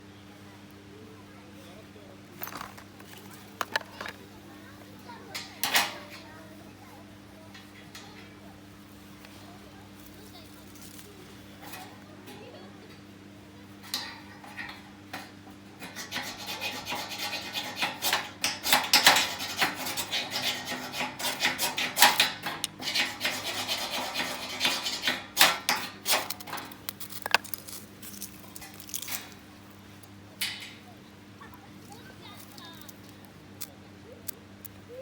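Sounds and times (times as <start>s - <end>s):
scraper rasping down ferro rod: 15.8s - 26.7s.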